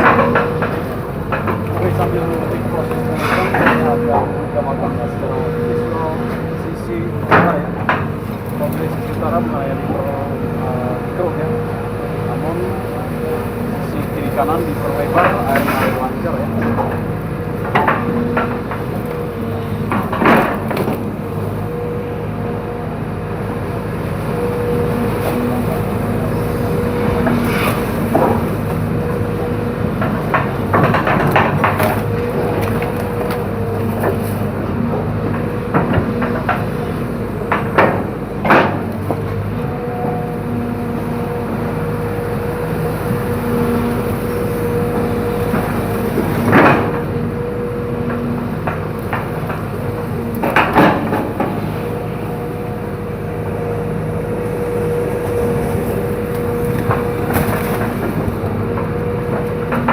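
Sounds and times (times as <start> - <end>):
excavator diesel engine running: 0.0 - 59.9
knocks and cracks: 30.0 - 34.4.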